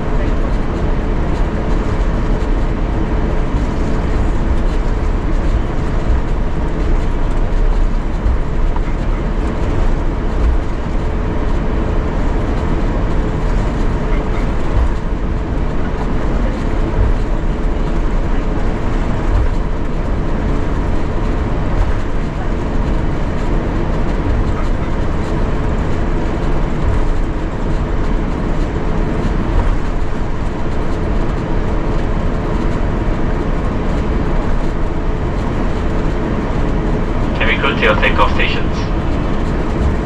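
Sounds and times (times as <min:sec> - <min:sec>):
aircraft engine low rumble: 0:00.0 - 0:40.0
faint steady hum: 0:37.3 - 0:39.8.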